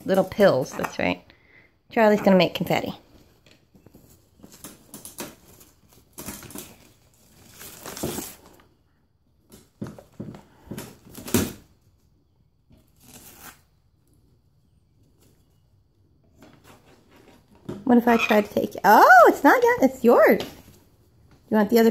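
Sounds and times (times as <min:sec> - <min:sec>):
bird ripping paper towel: 0:12.9 - 0:13.8.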